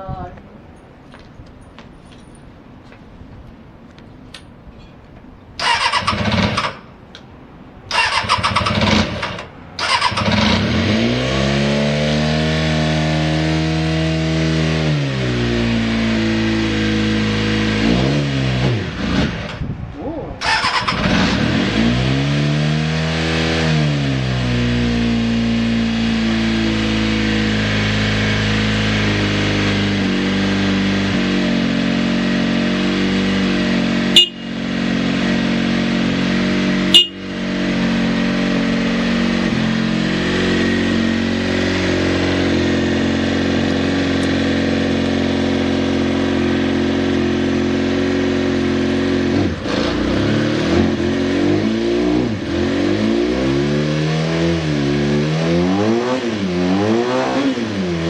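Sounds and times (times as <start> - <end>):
motorcycle engine idling: 34.2 - 34.7, 36.9 - 37.4.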